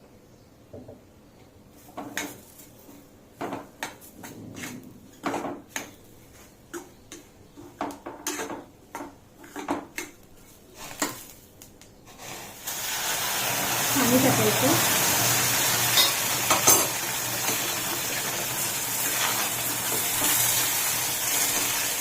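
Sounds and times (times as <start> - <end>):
spoon scraping a pan: 4.2 - 11.2, 15.8 - 18.0.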